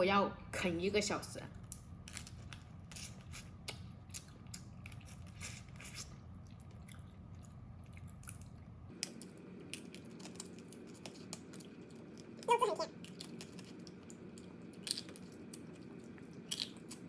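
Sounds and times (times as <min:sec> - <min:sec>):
person chewing: 0:02.0 - 0:17.0
crab shell crunching in teeth: 0:16.4 - 0:17.0.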